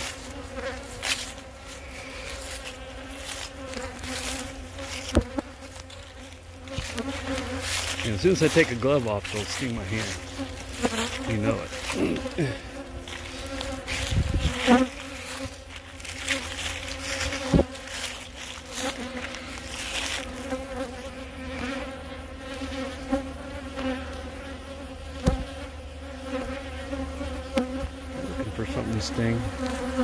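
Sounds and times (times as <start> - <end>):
honey bees buzzing: 0.0 - 30.0.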